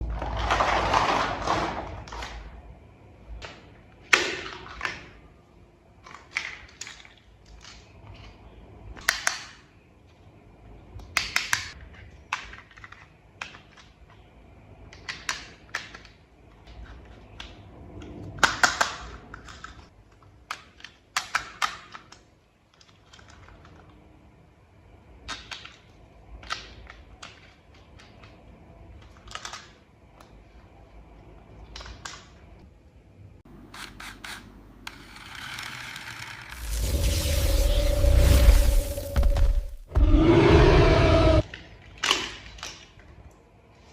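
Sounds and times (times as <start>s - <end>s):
plastic toy parts clicking: 29.0s - 29.8s.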